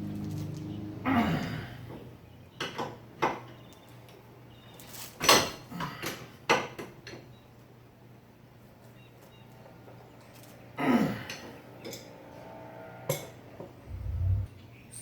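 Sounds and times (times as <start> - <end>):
faint steady hum: 13.8 - 14.6.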